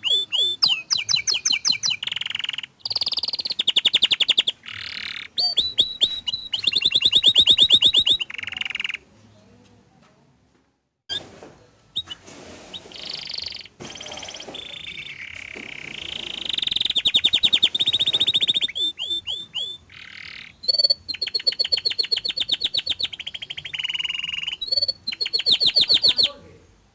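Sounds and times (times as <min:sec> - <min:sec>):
canary singing trills: 0:00.0 - 0:09.1, 0:11.9 - 0:26.5.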